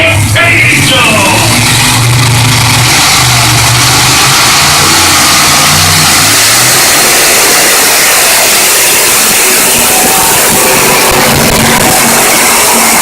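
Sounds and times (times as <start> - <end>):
tractor engine at full throttle: 0.0 - 13.0.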